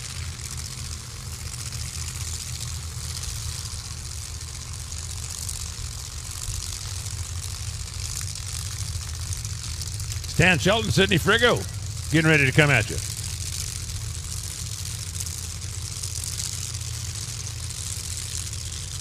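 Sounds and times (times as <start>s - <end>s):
car engines idling: 0.7s - 19.0s
constant hiss: 9.6s - 15.0s.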